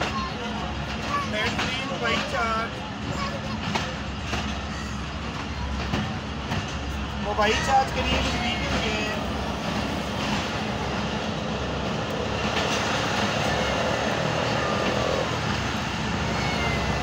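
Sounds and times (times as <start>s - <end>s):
train carriage wheels rolling on rails: 0.0s - 17.0s.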